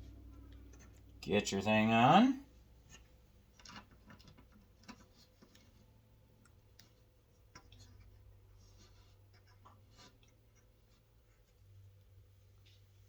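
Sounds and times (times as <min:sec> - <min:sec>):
faint clicks and light scrapes: 0:02.8 - 0:13.0.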